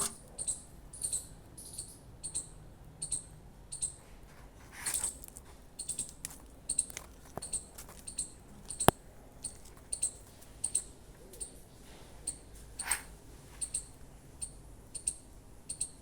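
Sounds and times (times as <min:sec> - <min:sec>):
small animal chirping: 0:00.0 - 0:04.0, 0:04.8 - 0:11.6, 0:12.2 - 0:16.0.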